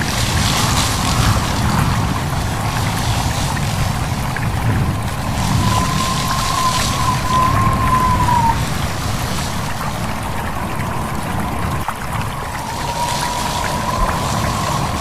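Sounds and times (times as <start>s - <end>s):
stream babbling: 0.0s - 15.0s
wind through leaves: 0.0s - 15.0s
thin wavering whistle: 4.7s - 8.8s, 11.0s - 15.0s.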